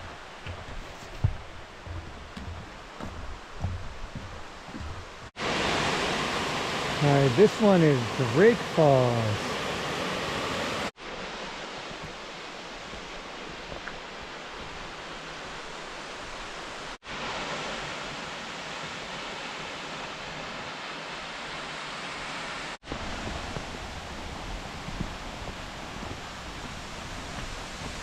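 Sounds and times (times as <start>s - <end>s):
waterfall rushing: 0.0s - 28.0s
wind rumble on microphone: 22.9s - 28.0s.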